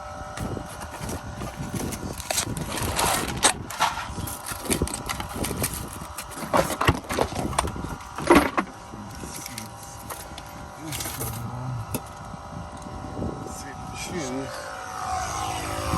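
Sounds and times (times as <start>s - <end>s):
objects rustling: 0.4s - 11.5s.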